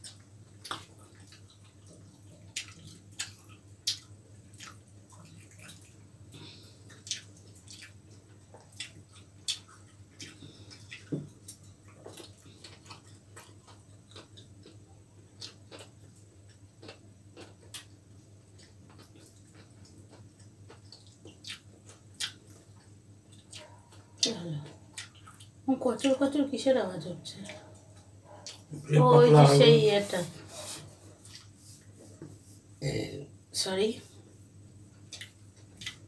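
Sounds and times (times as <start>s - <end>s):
chewing and crunching: 0.0s - 26.2s, 27.2s - 29.5s, 31.1s - 32.0s, 34.8s - 36.0s
low steady hum: 0.0s - 36.0s.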